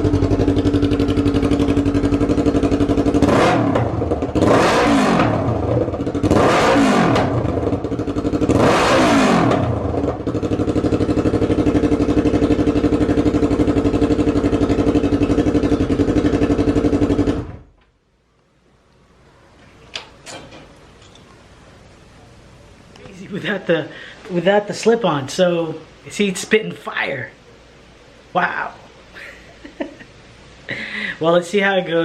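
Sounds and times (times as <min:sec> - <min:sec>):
motorcycle engine idling and revving: 0:00.0 - 0:17.8.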